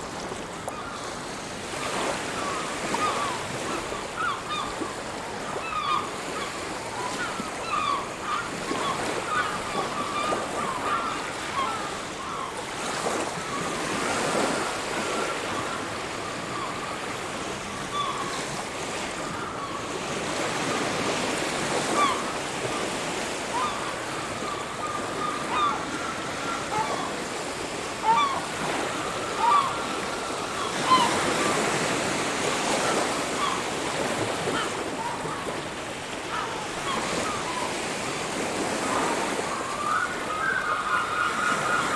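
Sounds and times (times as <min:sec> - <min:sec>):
sea waves washing onto beach: 0:00.0 - 0:01.3
birds calling: 0:01.9 - 0:14.4, 0:21.7 - 0:35.5, 0:36.3 - 0:41.9.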